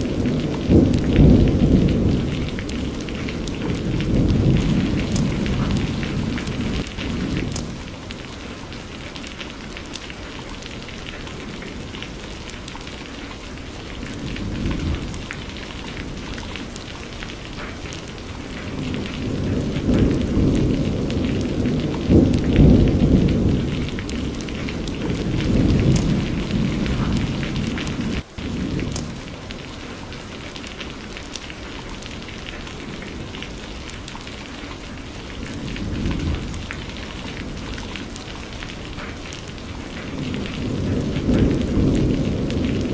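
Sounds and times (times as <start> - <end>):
rolling thunder: 0.0 - 8.2, 13.9 - 29.6, 35.3 - 42.9
steady rain: 0.0 - 42.9.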